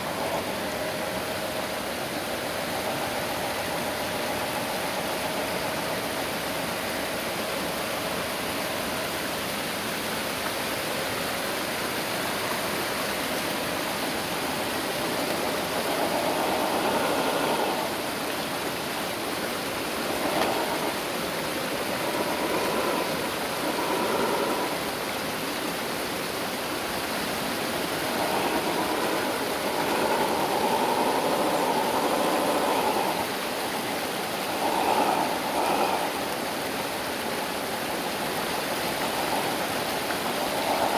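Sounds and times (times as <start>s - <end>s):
steady rushing hiss: 0.0s - 40.9s.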